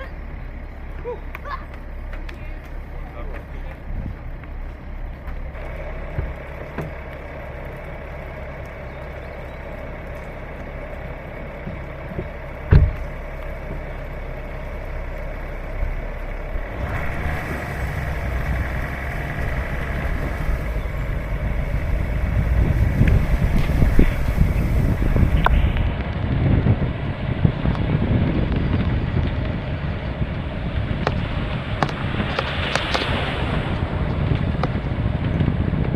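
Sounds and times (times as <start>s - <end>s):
vehicle engine running: 0.0s - 35.9s
rushing noise: 16.4s - 35.9s.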